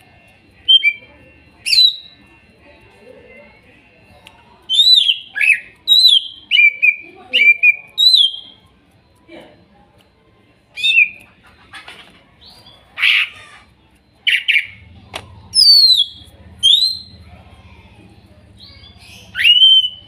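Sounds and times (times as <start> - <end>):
bird chirping and whistling: 1.6 - 2.2, 4.7 - 8.6, 10.8 - 11.2, 14.2 - 14.8, 15.5 - 17.1, 18.6 - 20.0
faint low hum: 12.2 - 20.0.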